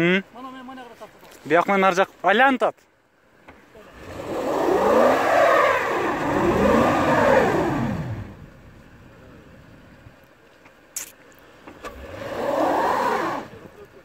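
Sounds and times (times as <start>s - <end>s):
suv engine revving: 3.4s - 9.8s, 11.5s - 13.8s.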